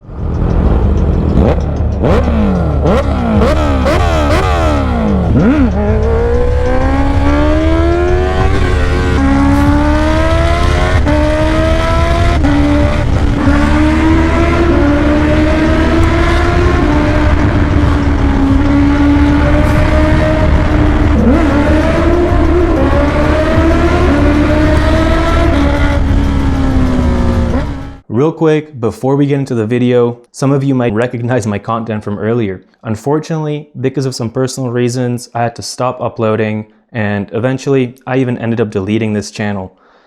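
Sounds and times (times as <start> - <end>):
loud motorcycle engine revving: 0.5 - 28.0.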